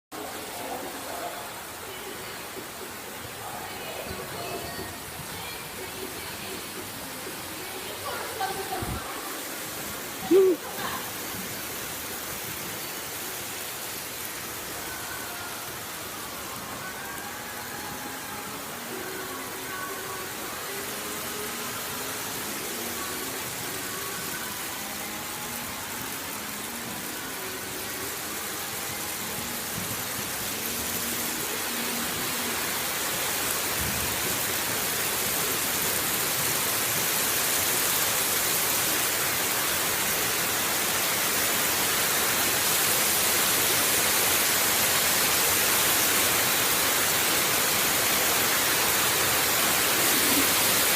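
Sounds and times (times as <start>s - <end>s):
hail falling hard: 29.1s - 50.9s.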